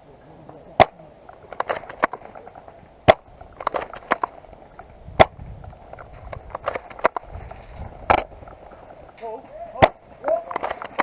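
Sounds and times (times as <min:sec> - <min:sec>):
airsoft gun shots: 0:00.8 - 0:04.4, 0:05.1 - 0:05.5, 0:09.6 - 0:11.0.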